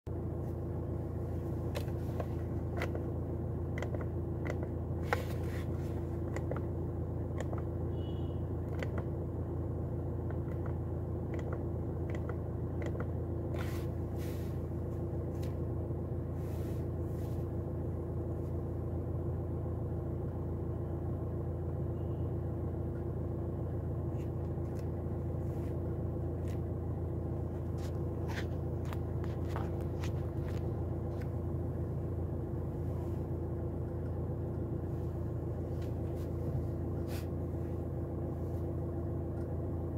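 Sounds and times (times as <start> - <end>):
car engine idling: 0.1 - 39.9.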